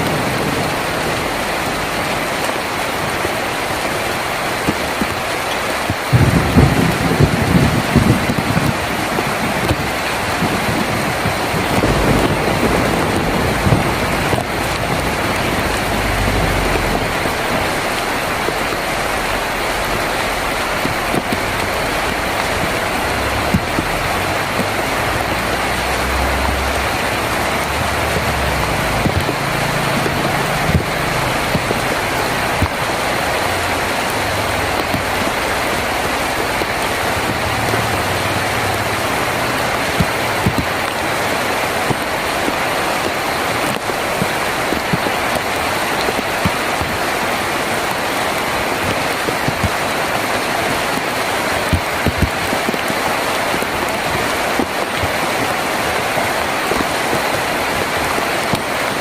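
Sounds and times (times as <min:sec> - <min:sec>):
heavy rain on a tin roof: 0:00.0 - 0:59.0
low rumble: 0:11.6 - 0:18.6.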